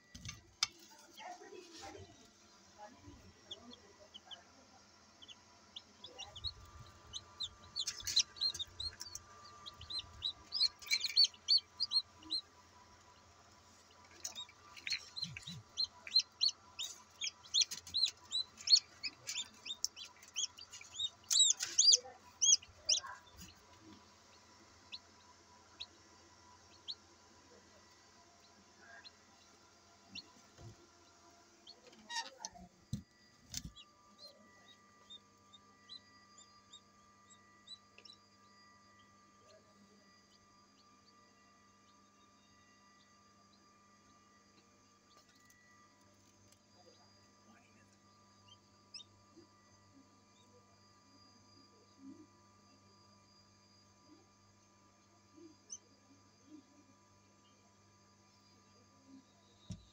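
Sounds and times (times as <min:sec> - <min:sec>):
chicks peeping: 0:02.9 - 0:04.5, 0:05.2 - 0:38.2.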